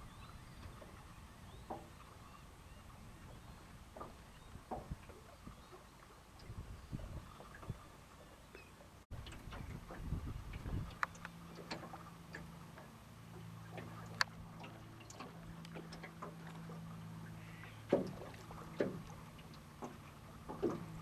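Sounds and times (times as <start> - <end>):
boat motor humming: 0.0 - 21.0
light ticks: 10.5 - 12.9, 13.7 - 16.6.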